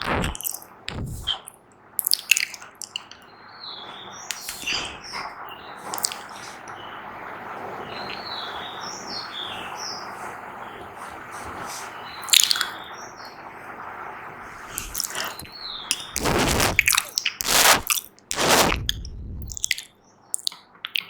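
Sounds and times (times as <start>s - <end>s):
steady hiss: 14.5s - 15.5s.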